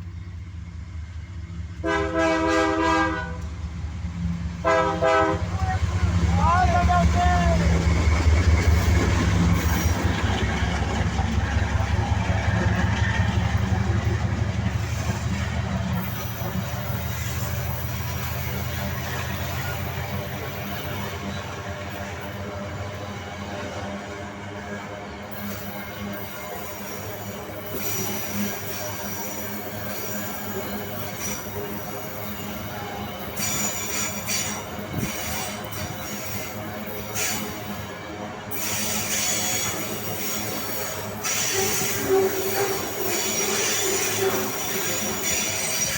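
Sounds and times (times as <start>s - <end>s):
diesel locomotive engine drone: 0.0s - 45.9s
freight train rumble: 0.0s - 45.9s
high wheel squeals: 25.3s - 37.9s, 38.5s - 45.9s.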